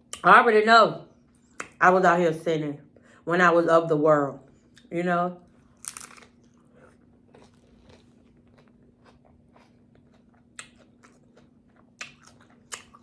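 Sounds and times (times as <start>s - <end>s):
faint steady hum: 0.0s - 13.0s
close chewing with crunches: 5.6s - 13.0s.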